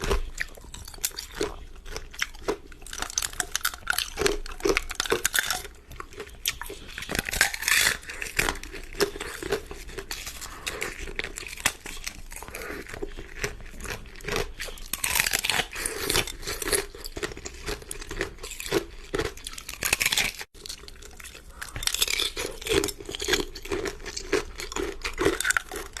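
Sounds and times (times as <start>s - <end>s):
chewing hard ice: 0.0s - 26.0s.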